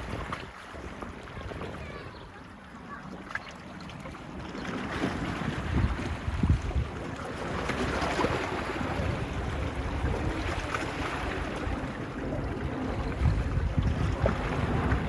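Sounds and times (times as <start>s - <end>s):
small waves washing on beach: 0.0s - 15.0s
wind buffeting microphone: 3.8s - 15.0s.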